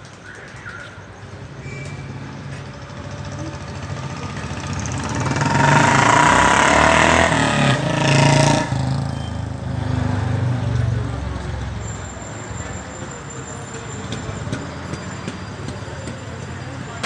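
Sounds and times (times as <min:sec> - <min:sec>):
street traffic: 0:00.0 - 0:17.0
vehicle engine running close by: 0:02.0 - 0:11.8.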